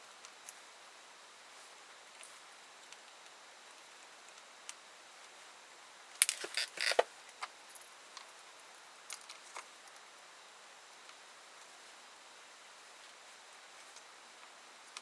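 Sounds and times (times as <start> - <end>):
tools and parts clicking and rattling: 6.2 - 7.1.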